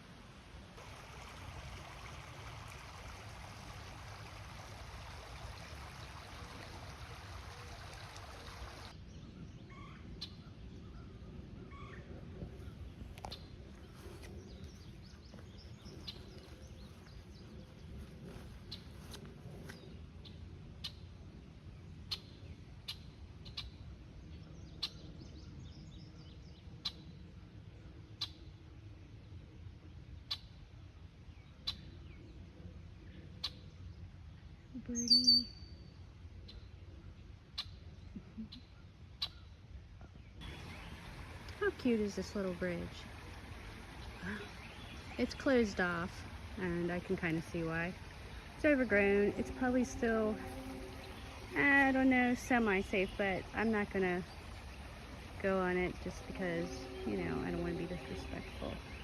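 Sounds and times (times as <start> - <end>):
low steady background noise: 0.0 - 59.0
creek babbling: 0.8 - 9.0, 12.2 - 19.8, 40.4 - 59.0.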